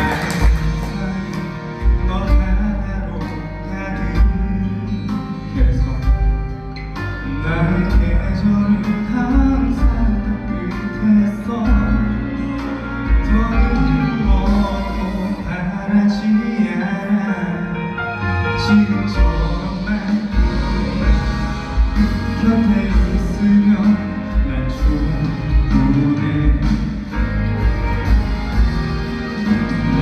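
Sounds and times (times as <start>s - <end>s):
song with steady beat and bass: 0.0s - 30.0s
person singing: 7.2s - 27.7s.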